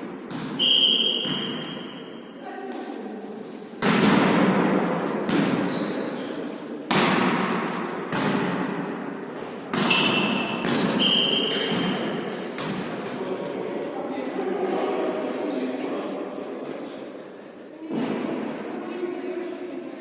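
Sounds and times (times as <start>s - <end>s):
volleyball hits echoing: 0.0s - 2.1s, 3.8s - 6.1s, 6.8s - 13.5s
short high squeaks: 12.3s - 12.6s.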